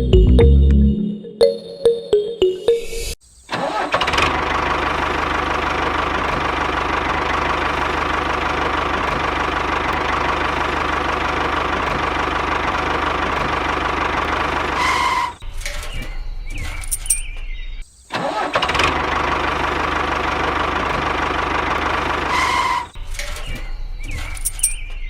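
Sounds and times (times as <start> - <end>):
engine running steadily: 3.7 - 15.4, 18.3 - 23.6.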